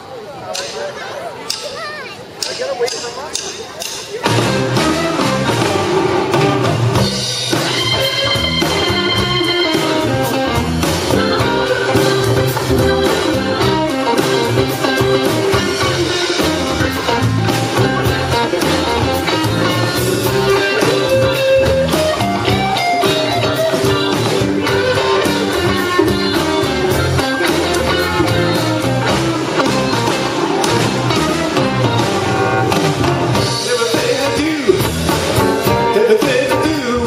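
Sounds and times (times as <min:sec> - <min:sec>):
blues band playing live: 0:00.5 - 0:37.0
electric guitar: 0:04.2 - 0:37.0.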